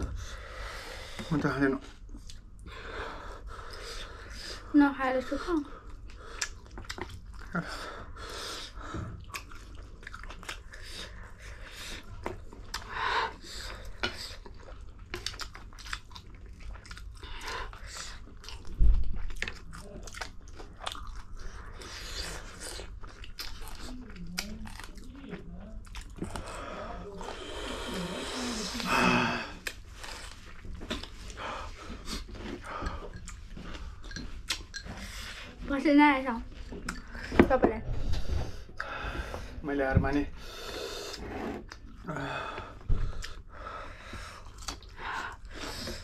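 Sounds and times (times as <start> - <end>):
wet chewing and biting: 5.9 - 7.6, 9.1 - 27.5, 29.6 - 31.4, 32.0 - 35.1, 44.3 - 45.8.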